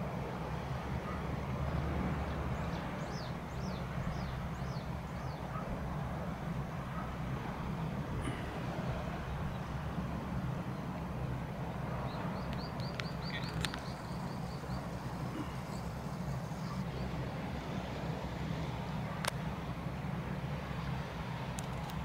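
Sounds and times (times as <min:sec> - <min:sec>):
low outdoor rumble: 0:00.0 - 0:22.0
bird chirping: 0:12.0 - 0:17.1.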